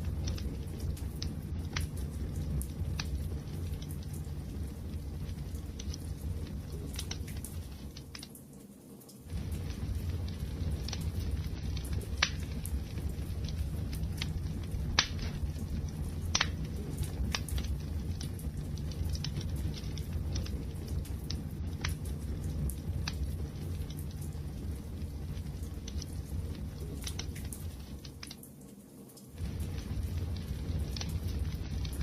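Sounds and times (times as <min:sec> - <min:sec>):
fire pops and snaps: 0:00.0 - 0:32.0
low rumble of burning: 0:00.0 - 0:32.0.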